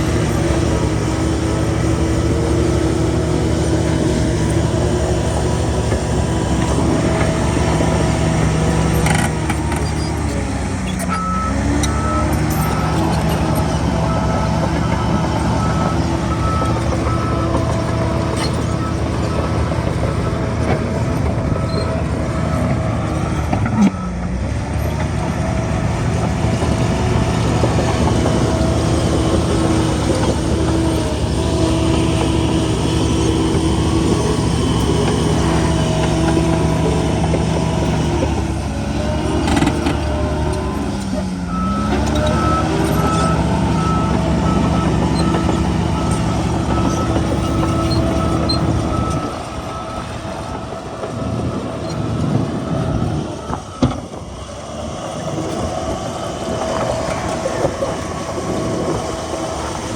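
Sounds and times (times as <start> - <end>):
bulldozer diesel engine running: 0.0 - 59.9
reversing alarm beeping: 11.0 - 59.9.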